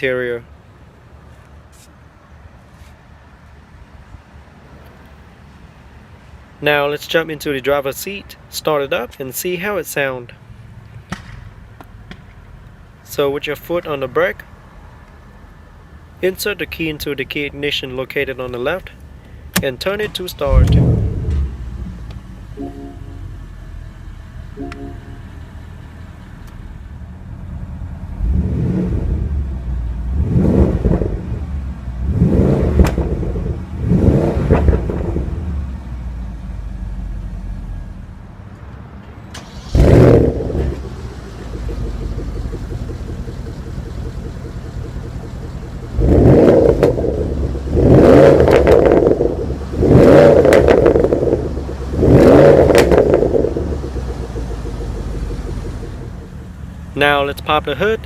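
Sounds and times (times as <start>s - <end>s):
car engine idling: 18.6s - 58.0s
car engine revving: 20.0s - 37.9s, 39.4s - 57.8s.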